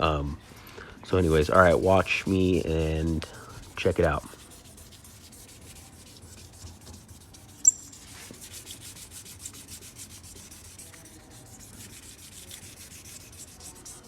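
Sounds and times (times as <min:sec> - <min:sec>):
sandpaper rubbing: 0:01.4 - 0:14.0.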